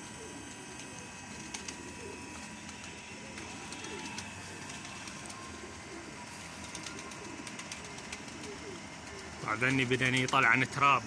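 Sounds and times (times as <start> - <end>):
pigeons cooing: 0.0 - 10.5.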